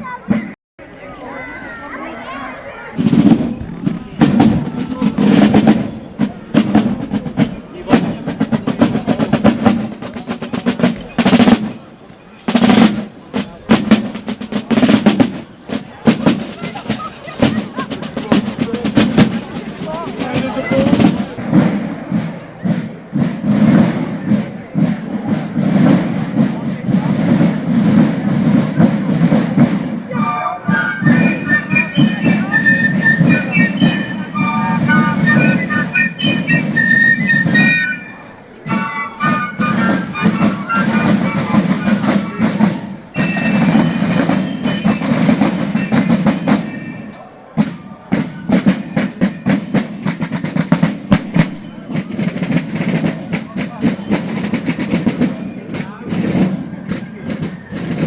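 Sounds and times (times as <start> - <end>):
rapid rolling drum strokes: 2.6 - 58.0
short high piccolo-like notes: 30.2 - 42.4.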